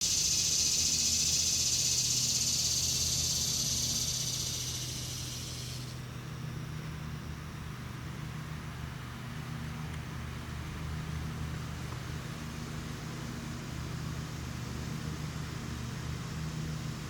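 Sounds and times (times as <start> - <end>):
cicada buzzing: 0.0 - 6.1.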